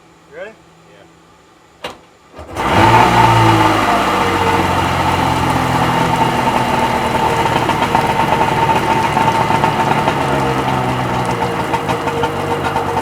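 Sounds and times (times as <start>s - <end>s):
two-stroke engine idling: 2.6s - 13.0s.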